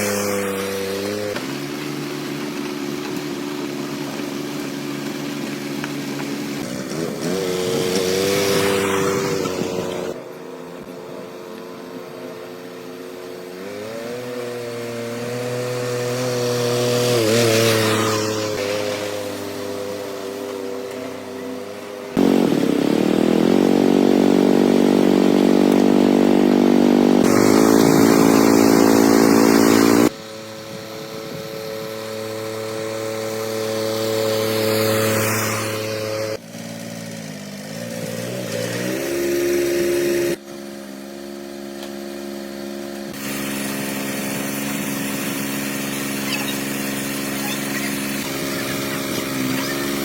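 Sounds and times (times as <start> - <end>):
engine running steadily: 0.0 - 50.0.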